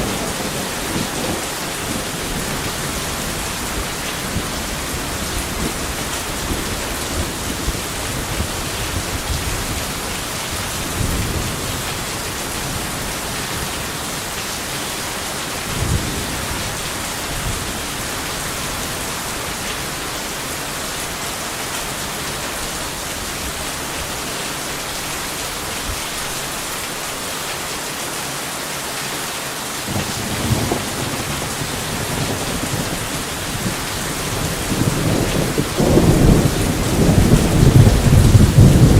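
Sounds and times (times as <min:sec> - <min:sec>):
low thunder rumbling: 0:00.0 - 0:14.4, 0:15.2 - 0:19.5, 0:29.9 - 0:38.9
heavy rain: 0:00.0 - 0:38.9.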